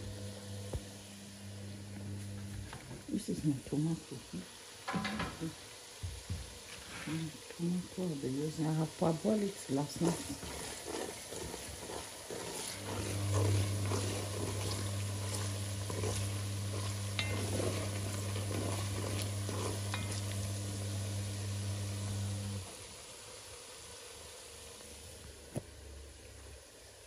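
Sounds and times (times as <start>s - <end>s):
onions sizzling in oil: 0.0s - 27.0s.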